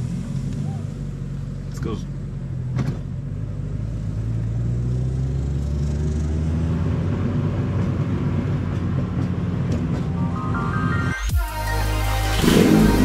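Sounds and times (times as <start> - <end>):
car engine running: 0.0 - 4.8
road rumble: 0.0 - 11.3.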